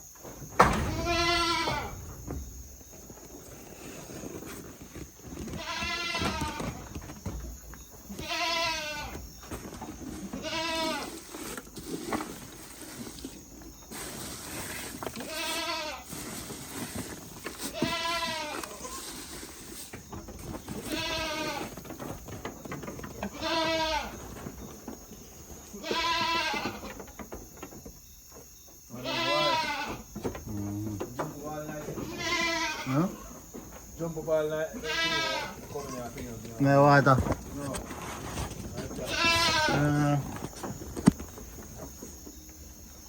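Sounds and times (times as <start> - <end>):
goats bleating: 0.9 - 2.0, 5.6 - 6.8, 8.2 - 9.2, 10.4 - 11.2, 15.2 - 16.1, 17.7 - 19.1, 20.8 - 21.7, 23.3 - 24.2, 25.8 - 26.8, 29.0 - 30.0, 31.9 - 33.4, 34.8 - 36.0, 38.9 - 40.2.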